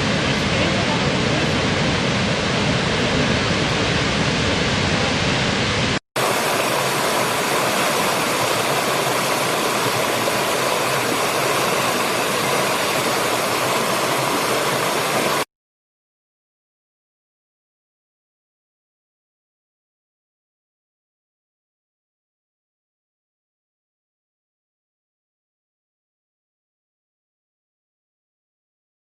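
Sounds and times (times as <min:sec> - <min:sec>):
waterfall rushing: 0:00.0 - 0:15.5.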